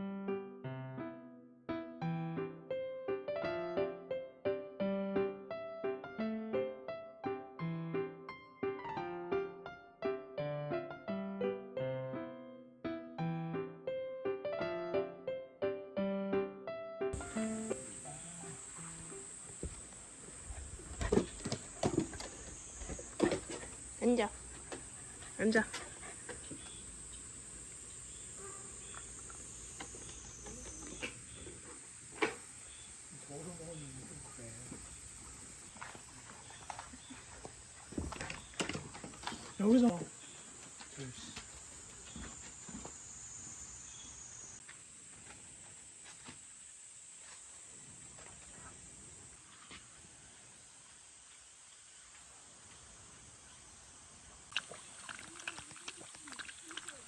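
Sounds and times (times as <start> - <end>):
insects chirring: 17.2 - 57.0.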